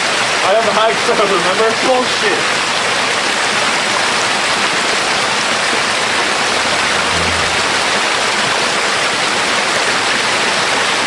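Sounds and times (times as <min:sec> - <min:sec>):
waterfall rushing: 0:02.1 - 0:09.2.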